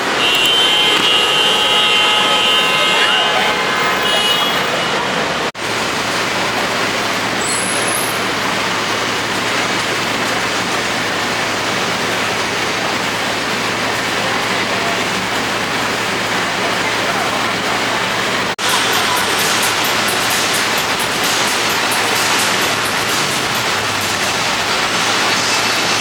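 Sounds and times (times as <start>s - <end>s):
city traffic: 0.0s - 26.0s.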